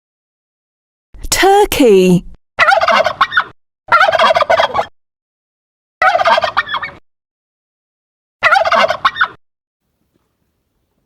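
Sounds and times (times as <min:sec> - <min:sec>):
turkey gobbling: 0:02.6 - 0:04.9, 0:06.0 - 0:07.0, 0:08.4 - 0:09.4.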